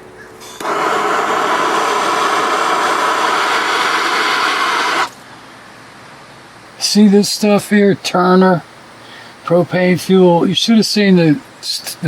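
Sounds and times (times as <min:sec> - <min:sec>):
torch flame hissing: 0:00.6 - 0:05.2.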